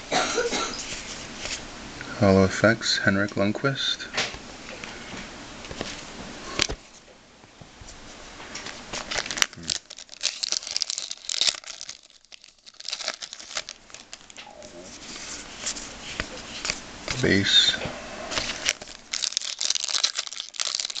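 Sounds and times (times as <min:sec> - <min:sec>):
wrapper crinkling and tearing: 0:08.6 - 0:14.8, 0:18.3 - 0:21.0.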